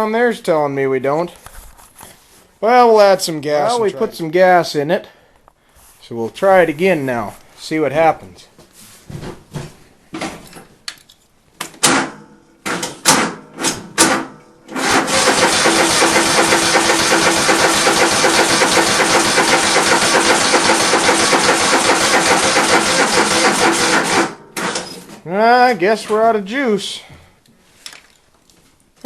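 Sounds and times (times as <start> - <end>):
electric starter cranking: 14.0 - 25.0.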